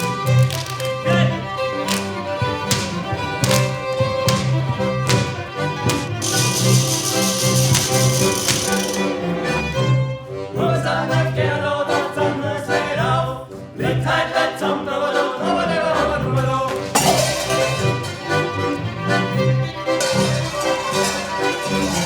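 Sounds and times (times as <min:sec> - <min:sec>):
voices singing: 0:00.0 - 0:09.8, 0:10.4 - 0:22.0.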